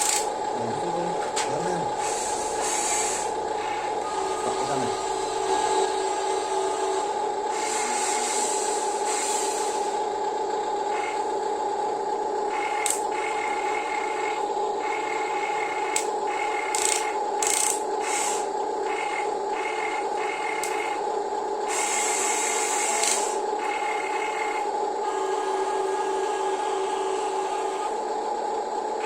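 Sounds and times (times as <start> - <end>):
toy electric motors whining: 0.0 - 11.4, 12.4 - 28.2
higher motor tone: 0.2 - 10.0.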